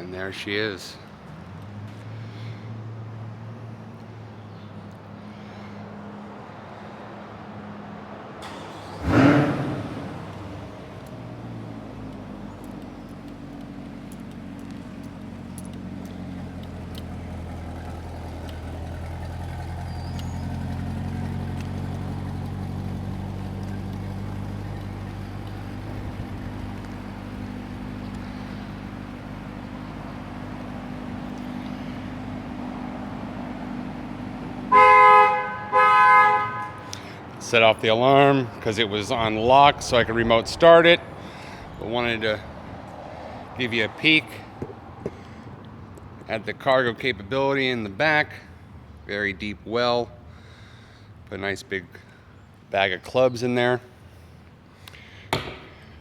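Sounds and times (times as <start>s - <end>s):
car engine starting and idling: 7.6s - 49.0s.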